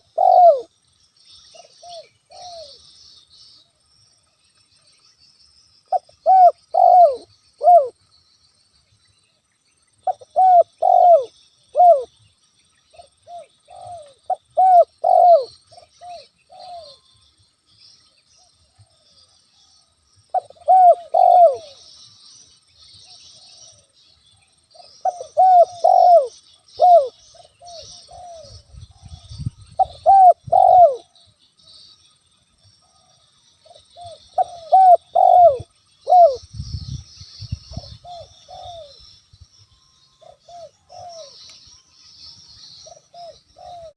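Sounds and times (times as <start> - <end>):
dove cooing: 0.0 - 0.7, 1.5 - 2.9, 5.9 - 8.0, 10.0 - 12.1, 12.9 - 17.0, 20.3 - 21.9, 24.7 - 31.3, 32.8 - 36.4, 37.7 - 39.1, 40.2 - 41.4, 42.8 - 43.9.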